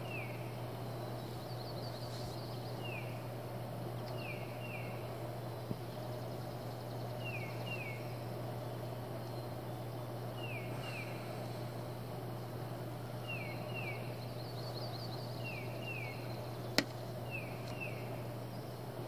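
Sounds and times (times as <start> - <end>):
steady low hum: 0.0 - 19.0
sharp click: 16.8 - 17.0.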